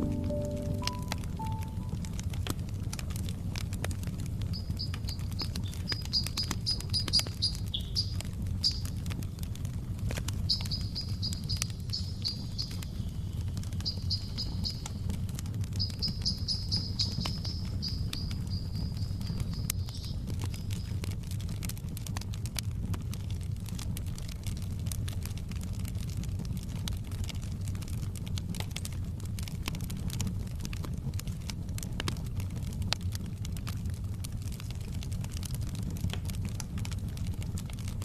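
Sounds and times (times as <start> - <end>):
bird chirping in high trills: 0.0 - 2.0, 15.8 - 20.1
wood fire crackling: 0.0 - 38.0.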